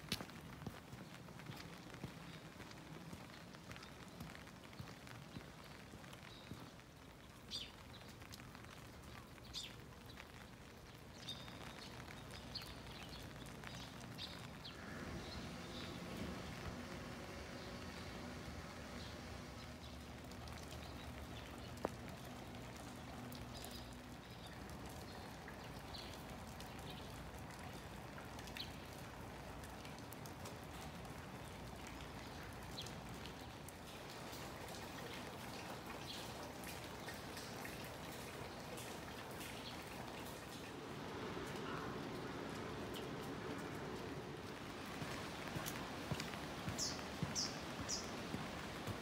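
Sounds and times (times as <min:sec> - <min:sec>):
light rain falling: 0:00.0 - 0:49.0
raindrops ticking on surfaces: 0:00.0 - 0:49.0.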